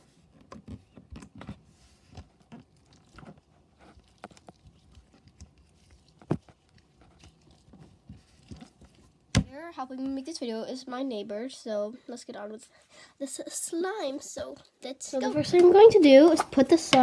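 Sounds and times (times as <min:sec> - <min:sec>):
noise putty squelching: 0:01.2 - 0:09.5.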